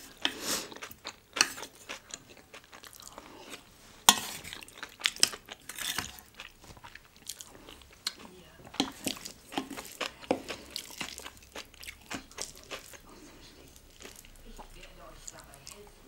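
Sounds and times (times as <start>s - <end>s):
chewing and crunching food: 0.0s - 16.0s
wet mouth sounds: 4.4s - 15.8s.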